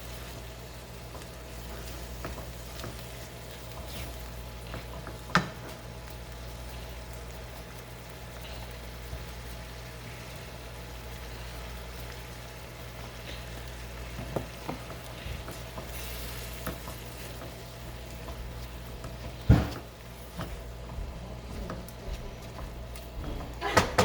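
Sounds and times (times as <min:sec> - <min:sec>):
food frying in a pan: 0:00.0 - 0:24.0
steady low hum: 0:00.0 - 0:24.0
stirring clicks: 0:11.9 - 0:24.0
utensil knocking on pan: 0:23.6 - 0:24.0.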